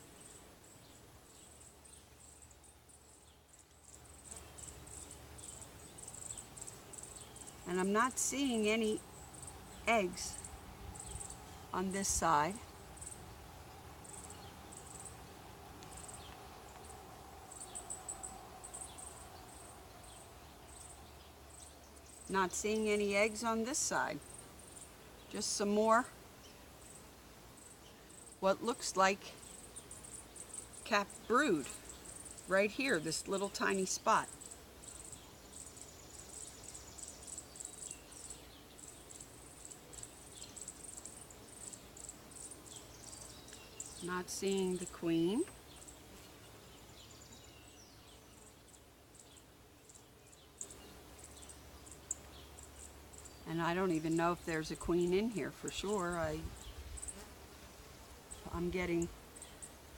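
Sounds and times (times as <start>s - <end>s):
bee colony humming: 3.2s - 59.9s
high-pitched insect chirping: 15.9s - 22.3s.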